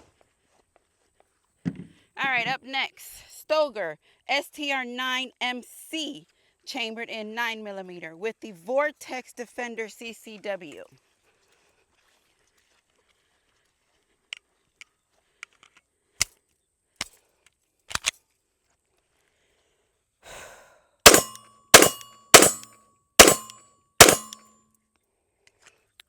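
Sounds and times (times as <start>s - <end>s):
pistol shots: 21.1s - 24.4s.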